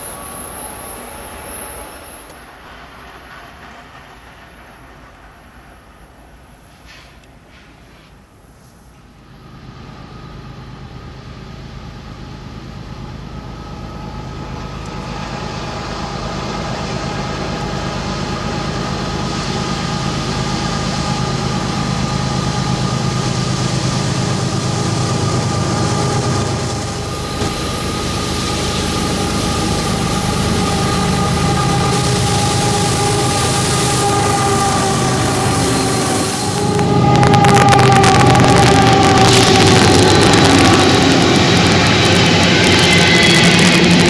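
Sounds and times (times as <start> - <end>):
train rolling noise: 0.0 - 44.0
locomotive engine rumble: 9.0 - 44.0
high-pitched wheel squeal: 26.8 - 44.0.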